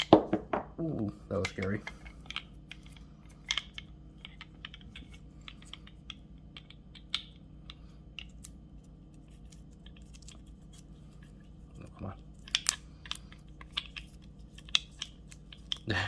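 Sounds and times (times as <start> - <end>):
small metal and plastic parts clicking: 12.4 - 15.9.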